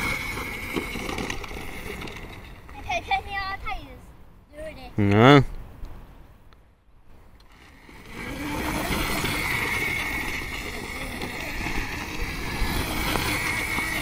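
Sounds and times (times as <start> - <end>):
rumbling tyre noise: 0.0 - 3.1, 7.2 - 14.0
electric motor whining: 7.4 - 14.0.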